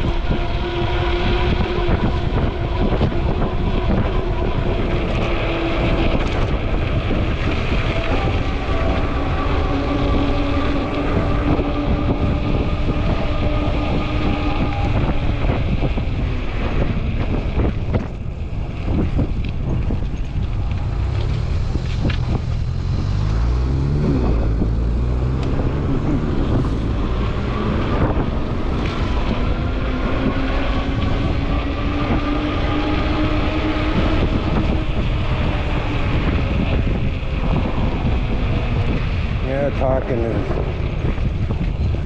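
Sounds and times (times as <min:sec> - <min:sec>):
low rumble changing pitch: 0:00.0 - 0:42.0
wind rumble on microphone: 0:00.0 - 0:42.0
electric motor whining: 0:20.6 - 0:38.0.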